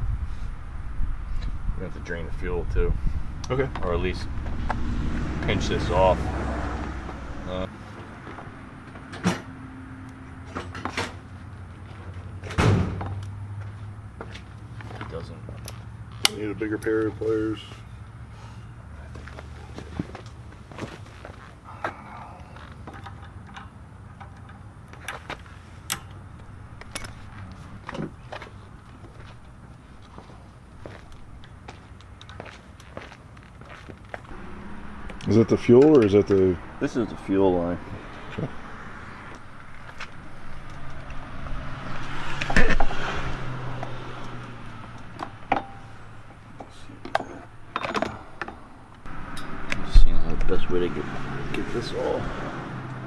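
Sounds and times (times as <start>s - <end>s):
steady low hum: 25.4s - 41.6s.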